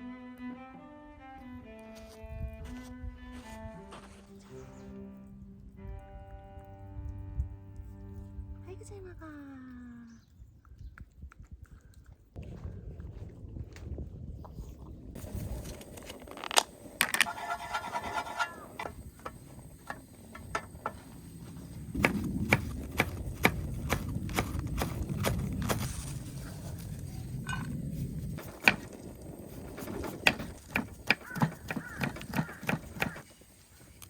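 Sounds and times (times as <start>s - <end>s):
scraping and rubbing on wood: 15.2s - 33.3s
sharp taps and knocks: 29.8s - 33.2s.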